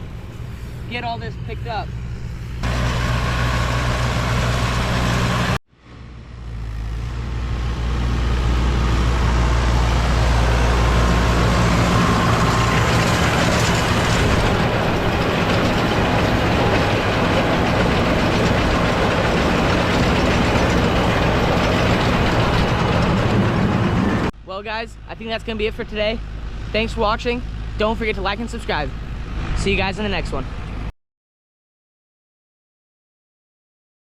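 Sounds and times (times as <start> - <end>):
tractor engine running: 1.2 - 24.4
hay-making machinery clatter: 10.4 - 24.2.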